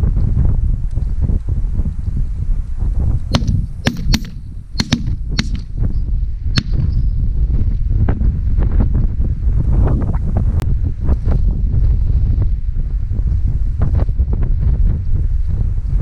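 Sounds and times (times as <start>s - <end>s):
wind noise on microphone: 0.0s - 16.0s
shotgun shots: 3.3s - 5.8s, 6.6s - 6.9s.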